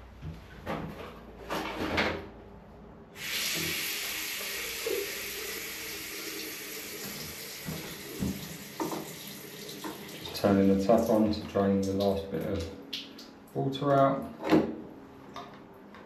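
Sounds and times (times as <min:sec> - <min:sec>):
water running from tap: 0:03.2 - 0:13.3.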